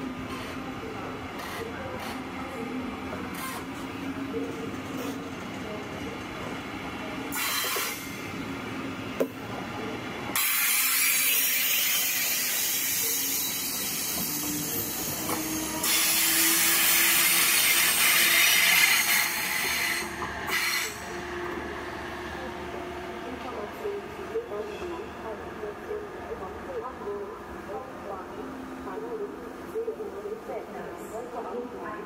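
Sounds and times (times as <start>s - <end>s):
train hissing rush: 10.2s - 22.2s.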